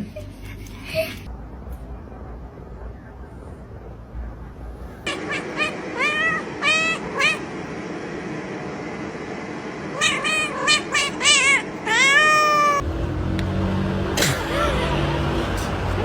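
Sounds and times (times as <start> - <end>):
cat meowing: 5.1 - 7.4, 10.0 - 12.8.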